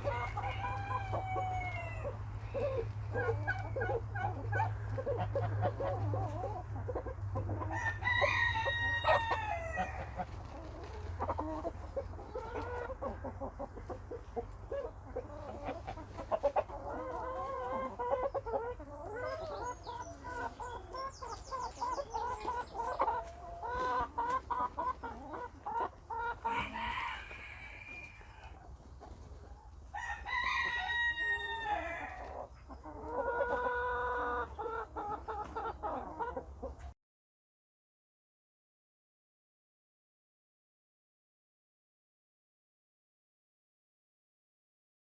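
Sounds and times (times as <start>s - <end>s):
rooster crowing: 0.0s - 2.2s, 7.7s - 9.9s, 26.5s - 28.5s, 30.0s - 32.2s
chickens clucking: 0.0s - 37.0s.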